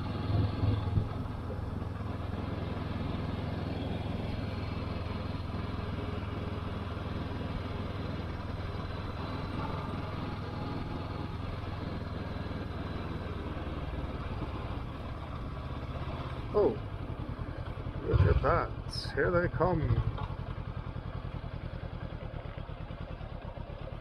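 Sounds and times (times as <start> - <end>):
motorcycle engine droning: 0.0 - 24.0
wind and road noise: 0.0 - 24.0.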